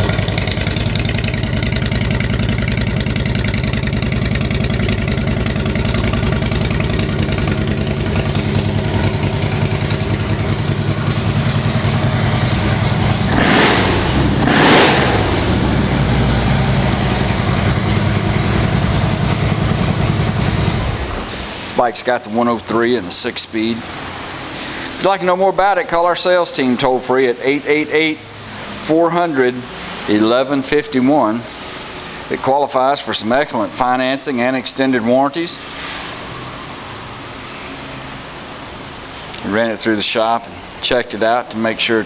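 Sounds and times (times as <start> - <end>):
motorcycle engine idling: 0.0 - 21.6.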